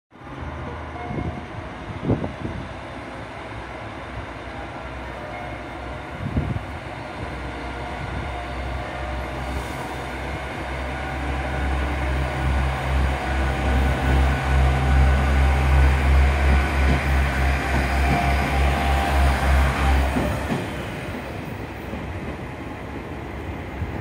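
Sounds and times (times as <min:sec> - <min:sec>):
train rumble and hum: 0:00.2 - 0:24.0.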